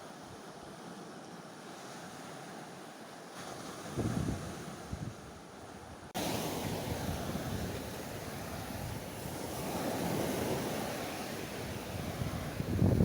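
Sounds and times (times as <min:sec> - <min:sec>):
surf washing on shore: 0:00.0 - 0:13.0
wind buffeting microphone: 0:03.4 - 0:13.0.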